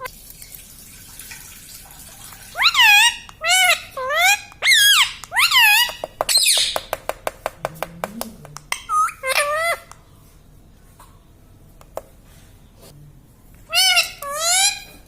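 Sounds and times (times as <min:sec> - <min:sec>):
parrot high-pitched calls: 0:02.5 - 0:06.9, 0:08.7 - 0:10.0, 0:13.6 - 0:15.0.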